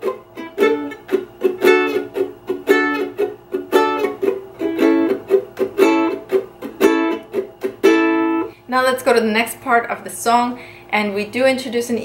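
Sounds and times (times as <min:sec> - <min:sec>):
ukulele strummed in reggae rhythm: 0:00.0 - 0:08.5.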